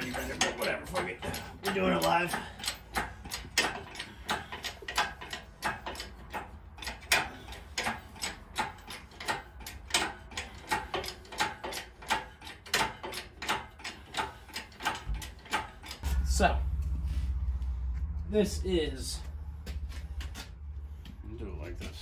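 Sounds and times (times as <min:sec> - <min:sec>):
ratchet clicking: 0:00.0 - 0:16.1.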